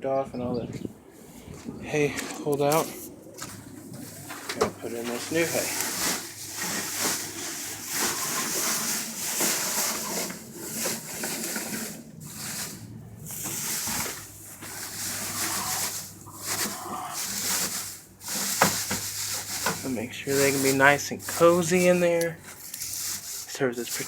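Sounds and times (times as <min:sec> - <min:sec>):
dry hay rustling and crunching: 0:02.6 - 0:24.0.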